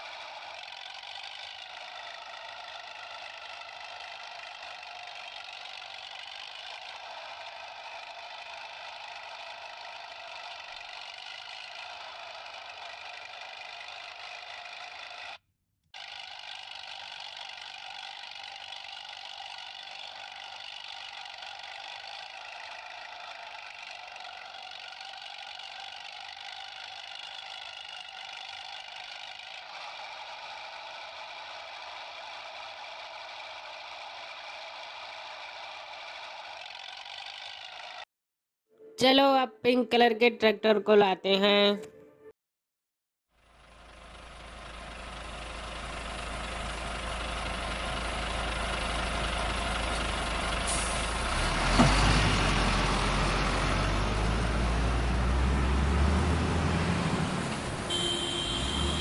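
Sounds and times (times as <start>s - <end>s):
toy motor whirring: 0.4s - 7.4s, 8.0s - 15.4s, 16.0s - 29.8s, 36.4s - 38.0s.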